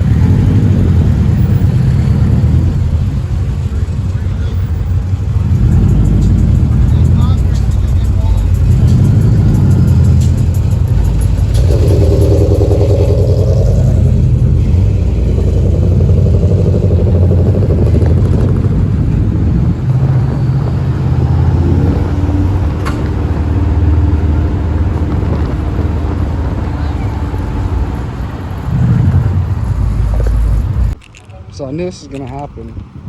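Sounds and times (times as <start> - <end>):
motor vehicle running: 0.0 - 33.0.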